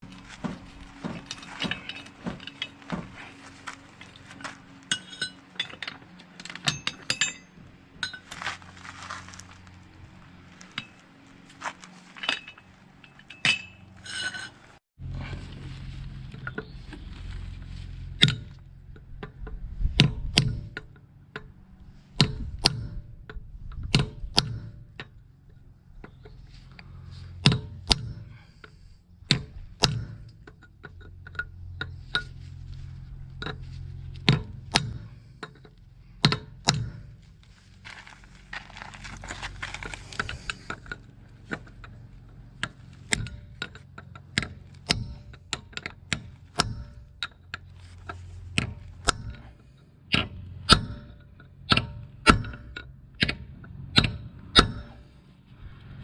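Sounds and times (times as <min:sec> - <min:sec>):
steady low hum: 0:00.0 - 0:56.0
metal tools clicking and knocking: 0:00.1 - 0:03.3, 0:04.0 - 0:08.3, 0:12.2 - 0:14.6, 0:40.1 - 0:53.4.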